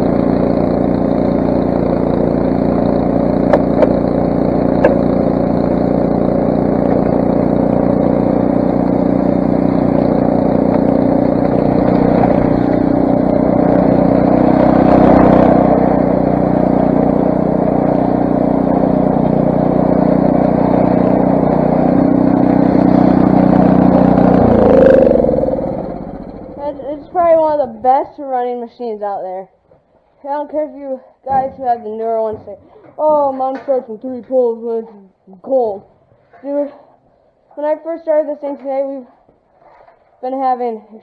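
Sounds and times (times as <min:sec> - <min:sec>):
snowblower engine running: 0:00.0 - 0:28.5.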